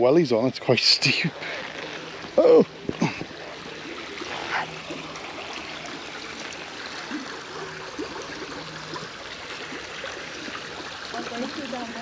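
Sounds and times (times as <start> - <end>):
small stream trickling: 0.0 - 12.0.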